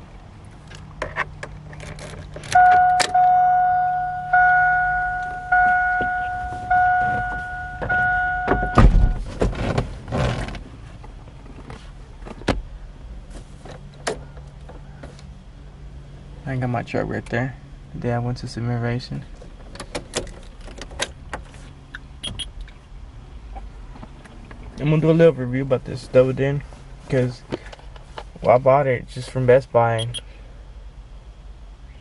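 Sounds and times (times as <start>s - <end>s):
car door warning chime: 2.6s - 9.2s, 22.2s - 22.5s, 30.0s - 30.2s
car door shutting thud: 4.4s - 9.9s.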